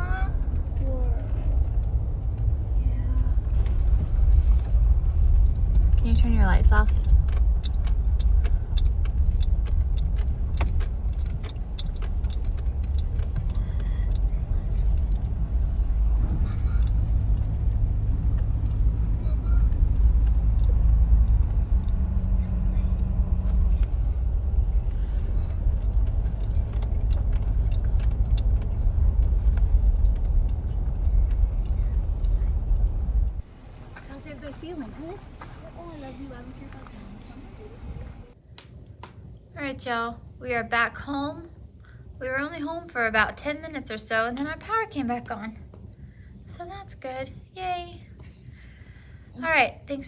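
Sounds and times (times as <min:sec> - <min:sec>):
car cabin rumble: 0:00.0 - 0:38.4
light clicks and rattles: 0:00.0 - 0:39.4.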